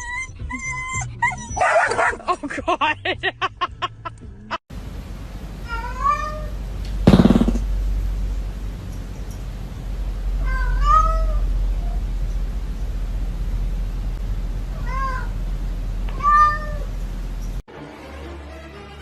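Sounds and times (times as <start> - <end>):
steady low hum: 4.7 - 17.6
cat meowing: 5.6 - 6.6, 10.4 - 11.4, 14.7 - 15.3, 16.1 - 16.9.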